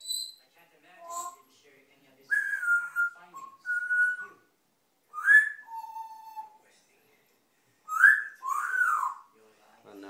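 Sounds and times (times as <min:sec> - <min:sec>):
parrot whistling: 0:00.0 - 0:00.4, 0:01.0 - 0:01.5, 0:02.3 - 0:04.5, 0:05.1 - 0:06.6, 0:07.9 - 0:09.3.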